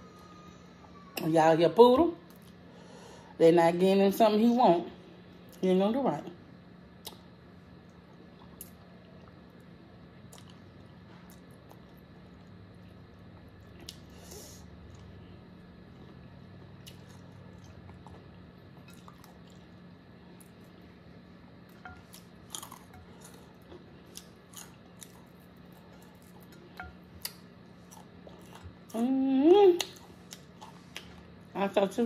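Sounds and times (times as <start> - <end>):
low steady hum: 0.0 - 32.0
person chewing: 10.2 - 14.2, 15.8 - 20.8, 21.6 - 29.0, 29.8 - 31.3.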